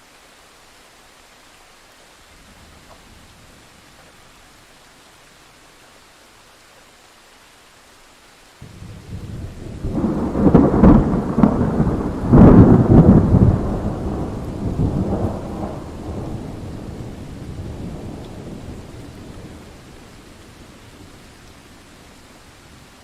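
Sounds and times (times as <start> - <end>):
steady rain: 0.0 - 23.0
thunderclap: 8.7 - 18.7.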